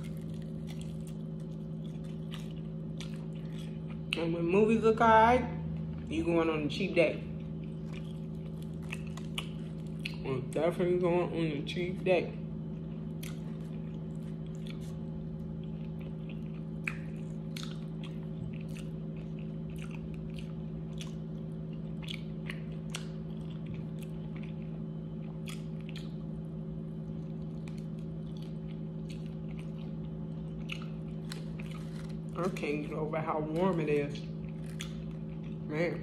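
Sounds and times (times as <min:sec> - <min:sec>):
crunchy bites: 0:00.0 - 0:04.2, 0:07.4 - 0:10.2
chewing with wet mouth smacks: 0:00.0 - 0:04.3, 0:07.3 - 0:10.3, 0:12.7 - 0:32.6, 0:33.5 - 0:35.7
low hum: 0:00.0 - 0:36.0.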